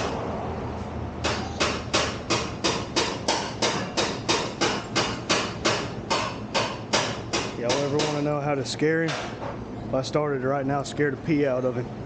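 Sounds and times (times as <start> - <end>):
hammering on metal: 1.2 - 8.3, 9.0 - 9.5.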